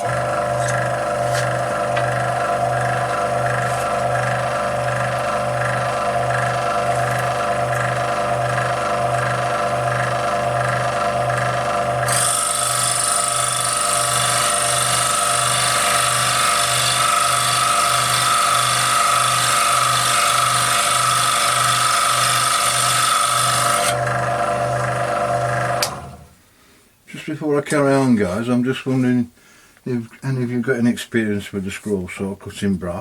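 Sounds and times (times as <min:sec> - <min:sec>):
scroll saw running: 0:00.0 - 0:26.3
saw blade rasping whine on brass: 0:12.1 - 0:24.0.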